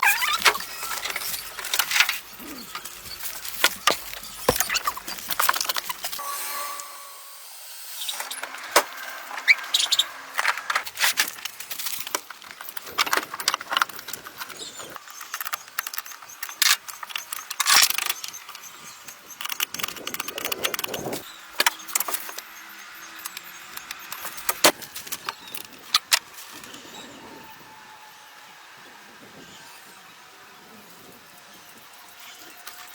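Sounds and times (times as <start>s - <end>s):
clatter of clicks and knocks: 10.4s - 18.5s.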